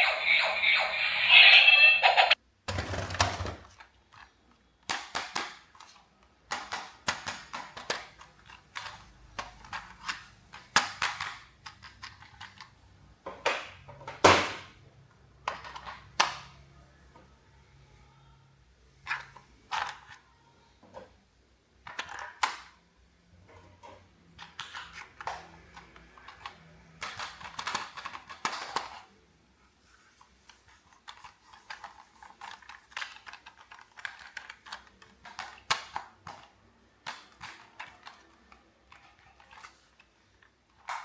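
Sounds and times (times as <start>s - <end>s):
plastic toys clicking and knocking: 0.0s - 14.7s, 15.4s - 16.5s, 19.1s - 20.2s, 21.8s - 22.8s, 23.8s - 29.1s, 30.5s - 41.0s.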